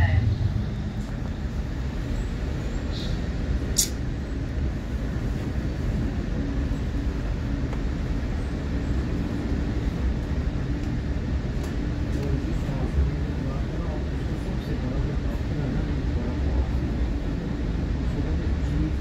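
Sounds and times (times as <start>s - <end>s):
train rumble from inside coach: 0.0s - 19.0s
sharp click: 3.8s - 4.0s.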